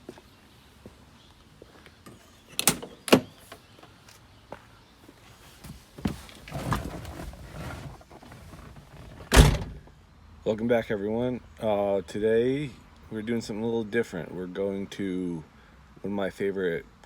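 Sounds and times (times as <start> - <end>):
rustling and shuffling: 3.4 - 10.0.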